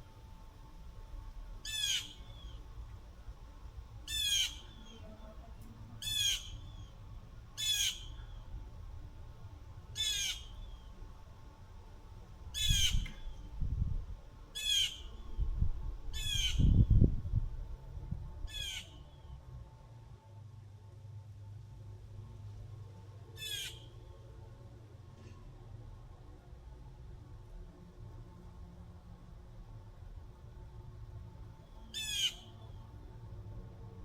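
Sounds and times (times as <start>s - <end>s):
bird squawking: 1.7s - 2.2s, 4.1s - 5.1s, 6.0s - 6.6s, 7.6s - 8.2s, 10.0s - 10.6s, 14.6s - 15.1s, 16.2s - 16.7s, 23.4s - 23.8s, 32.0s - 32.5s.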